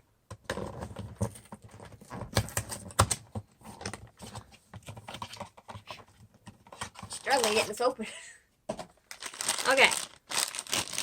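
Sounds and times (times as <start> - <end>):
packaging crinkling and clicking: 9.1 - 11.0.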